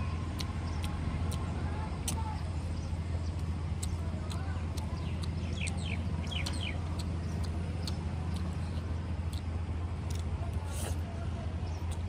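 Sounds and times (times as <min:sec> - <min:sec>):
small bird chirping: 0:00.0 - 0:09.4
low steady hum: 0:00.0 - 0:12.0
chewing clicks: 0:00.2 - 0:12.0.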